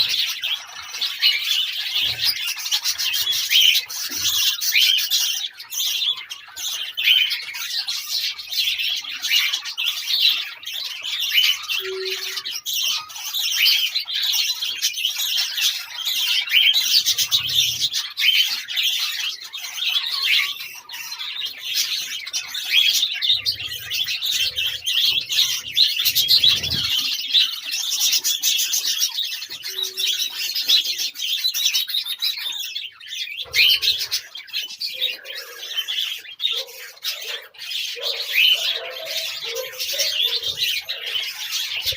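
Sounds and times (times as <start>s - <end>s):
budgerigars chirping: 0.0s - 41.9s.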